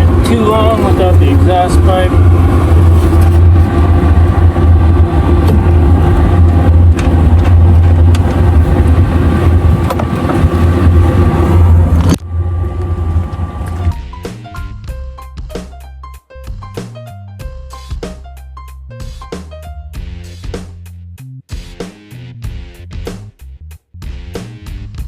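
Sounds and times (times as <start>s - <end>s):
furnace humming and rushing: 0.0s - 14.2s
music: 13.9s - 25.0s.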